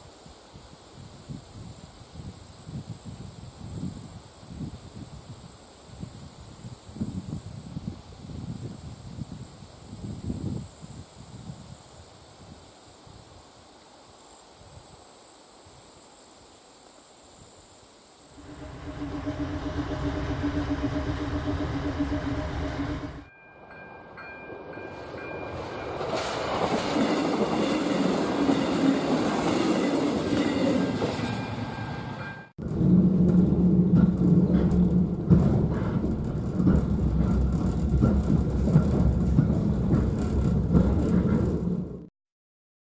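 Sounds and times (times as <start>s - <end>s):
level crossing warning tones: 18.4s - 23.3s
train carriage rumble: 18.4s - 42.1s
train passing with a rush: 18.4s - 42.1s
wheels clicking over rail joints: 32.6s - 42.1s.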